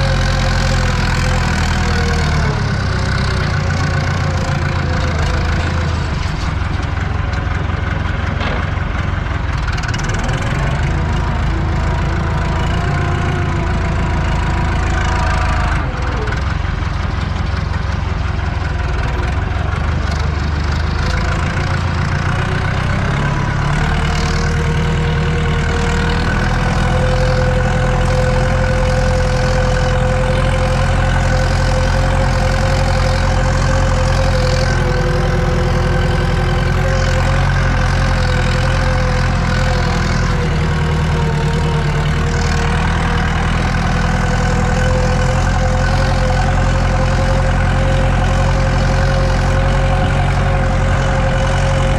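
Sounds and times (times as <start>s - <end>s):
tractor diesel engine running: 0.0s - 51.9s
whine: 44.0s - 51.9s.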